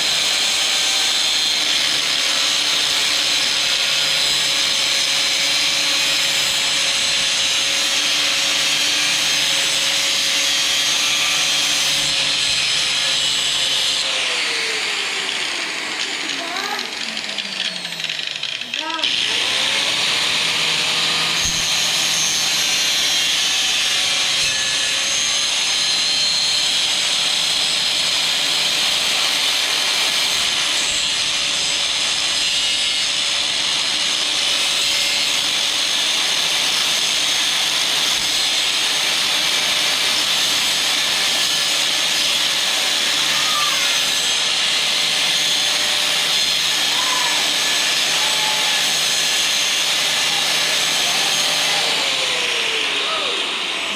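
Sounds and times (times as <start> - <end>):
angle grinder cutting steel: 0.0 - 53.9.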